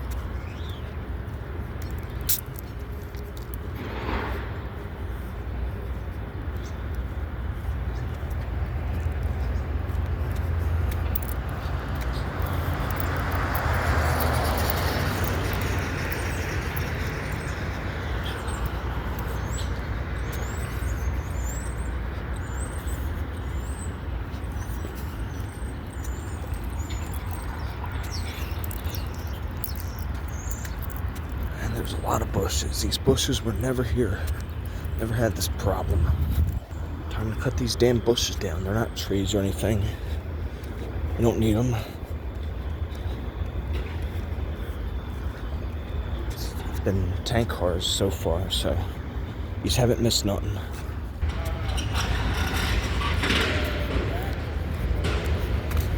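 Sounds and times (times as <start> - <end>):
birds chirping: 0.0 - 55.9
freight train cars rolling: 51.2 - 55.9.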